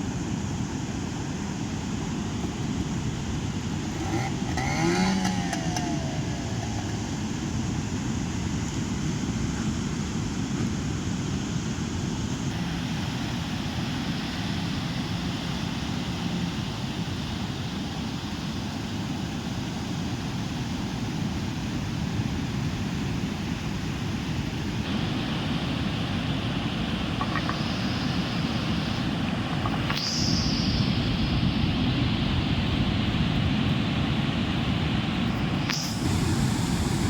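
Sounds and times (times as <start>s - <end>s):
heavy surf breaking: 2.4s - 9.0s, 23.5s - 37.0s
wind rumbling on microphone: 20.1s - 37.0s.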